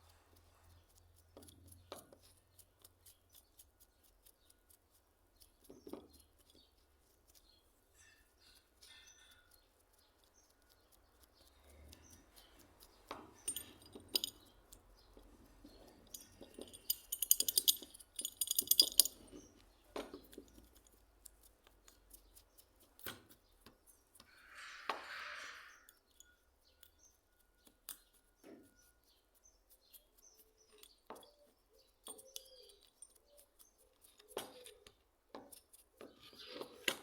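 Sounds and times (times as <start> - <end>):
rattling ticks: 0.0 - 19.6
metal parts clicking and clinking: 12.8 - 14.8, 15.6 - 21.0.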